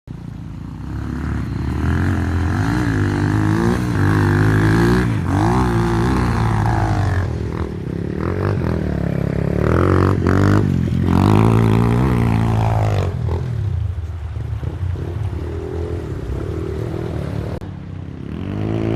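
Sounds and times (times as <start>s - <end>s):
dirt bike engine revving: 0.3s - 13.9s, 18.2s - 18.9s.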